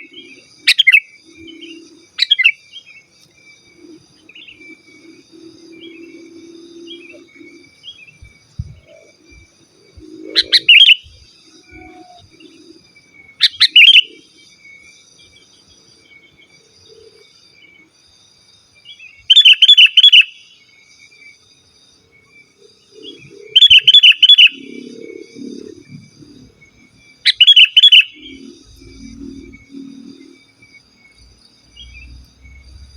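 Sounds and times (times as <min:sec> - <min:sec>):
bulbul singing: 0:00.0 - 0:14.5, 0:22.8 - 0:32.9
faint insect chirring: 0:00.0 - 0:32.9.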